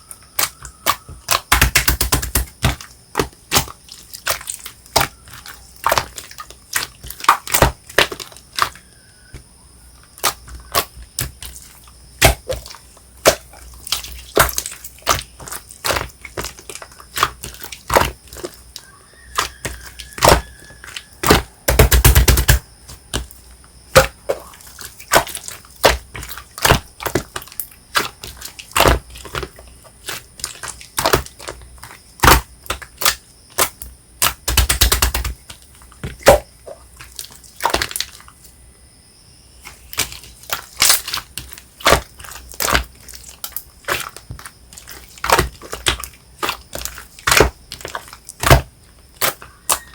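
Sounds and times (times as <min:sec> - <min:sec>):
rapid crackling of slime: 0:00.1 - 0:09.0, 0:10.1 - 0:38.5, 0:39.6 - 0:49.9
slime squished by hand: 0:10.2 - 0:38.3, 0:39.7 - 0:49.9.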